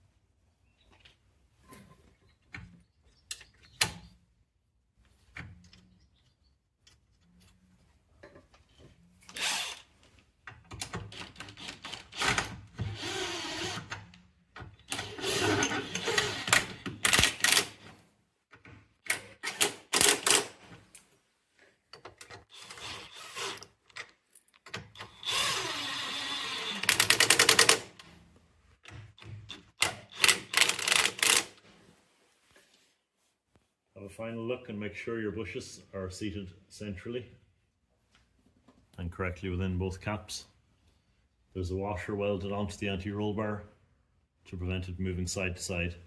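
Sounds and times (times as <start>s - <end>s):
power tool bursts: 15.0s - 17.8s, 25.1s - 27.9s.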